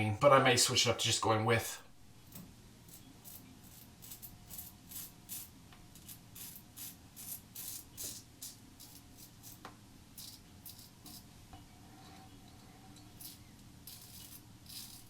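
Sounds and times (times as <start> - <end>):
razor scraping stubble: 13.2 - 15.0.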